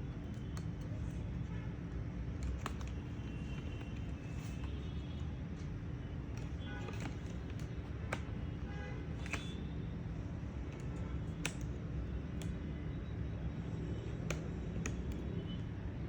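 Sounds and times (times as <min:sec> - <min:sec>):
clicks and taps on plastic case: 0:02.3 - 0:04.8, 0:06.3 - 0:08.5, 0:09.2 - 0:09.6.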